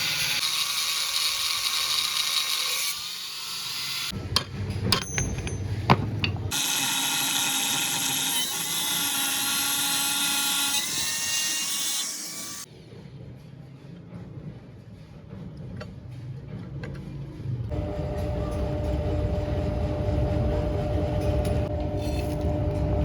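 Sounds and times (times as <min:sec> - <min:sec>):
power tool cutting steel: 0:00.0 - 0:04.2, 0:06.5 - 0:12.7.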